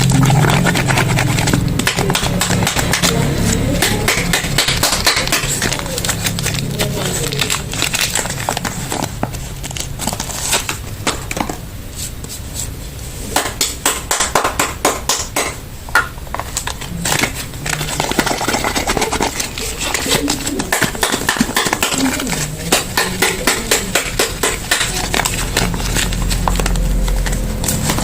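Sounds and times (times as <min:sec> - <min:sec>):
plastic and paper wrapping crinkling: 0:00.0 - 0:13.3, 0:15.9 - 0:28.0.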